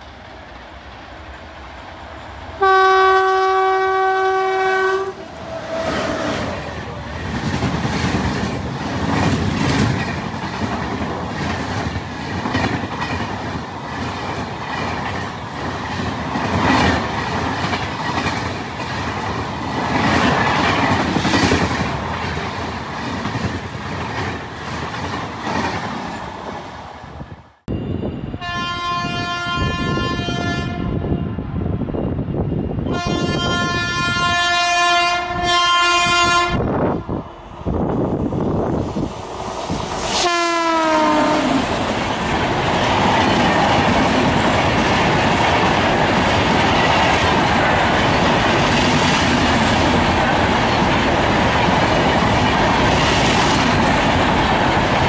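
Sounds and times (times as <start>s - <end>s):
passenger train rushing past: 0.0s - 55.0s
locomotive horn: 2.6s - 6.6s, 28.3s - 31.3s, 32.8s - 36.7s, 40.2s - 41.7s.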